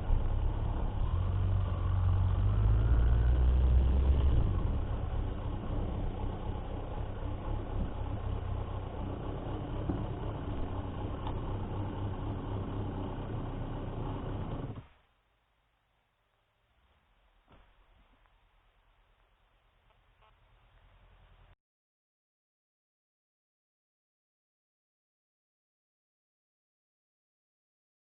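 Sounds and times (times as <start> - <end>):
motorcycle engine running: 0.0 - 14.8.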